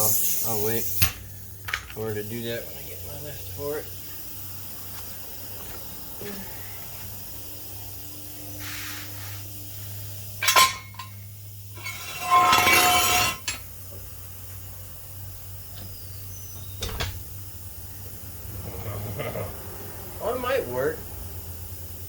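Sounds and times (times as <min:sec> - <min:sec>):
metal objects clanking: 0:10.4 - 0:11.2, 0:11.8 - 0:13.6
metallic rattle and scrape: 0:10.4 - 0:13.6.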